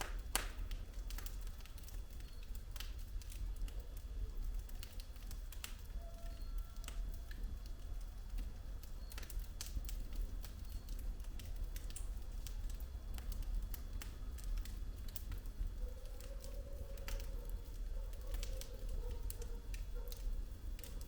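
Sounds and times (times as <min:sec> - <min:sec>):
logs crackling and popping: 0:00.0 - 0:21.0
low rumble of flames: 0:00.0 - 0:21.0.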